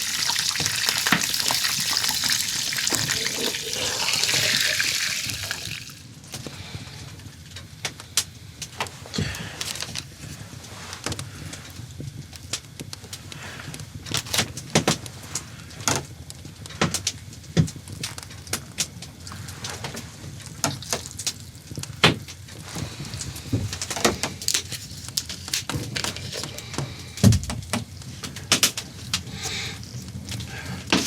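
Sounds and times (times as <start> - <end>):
liquid pouring: 0.0 - 6.1.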